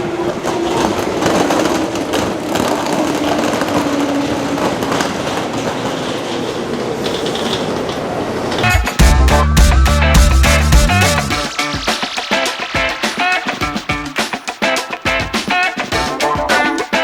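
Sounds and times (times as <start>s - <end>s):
low train hum: 0.0s - 11.6s
wheels clicking over track: 0.2s - 8.8s.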